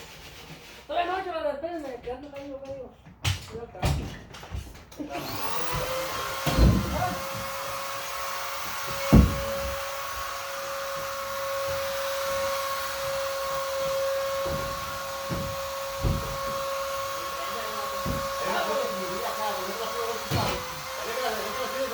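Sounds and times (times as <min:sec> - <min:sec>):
vacuum cleaner whining: 0:05.0 - 0:21.9
knocks: 0:08.7 - 0:09.8, 0:13.9 - 0:16.9, 0:18.0 - 0:18.4.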